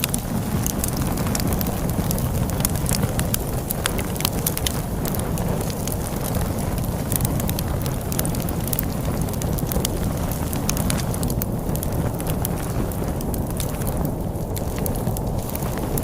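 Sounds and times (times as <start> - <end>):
log fire crackling: 0.0 - 16.0
storm wind rushing: 0.0 - 16.0.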